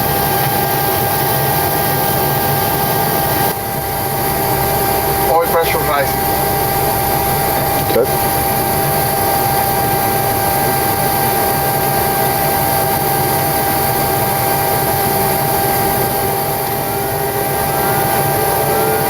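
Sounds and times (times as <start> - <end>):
cockpit hum and hiss: 0.0 - 19.0
turbofan engine winding up: 12.0 - 19.0
faint rising whine: 16.3 - 19.0.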